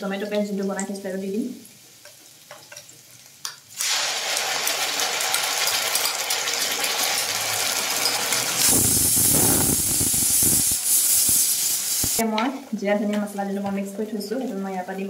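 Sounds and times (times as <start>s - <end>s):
food sizzling in hot oil: 0.3s - 12.2s.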